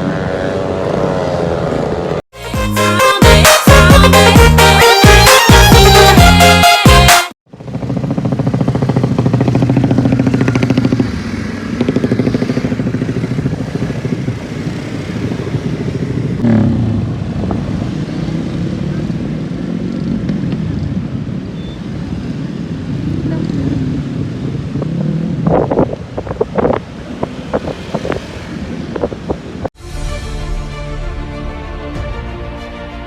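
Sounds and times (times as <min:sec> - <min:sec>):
motocross bike engines revving: 0:00.0 - 0:02.2, 0:07.6 - 0:17.2, 0:22.9 - 0:29.7.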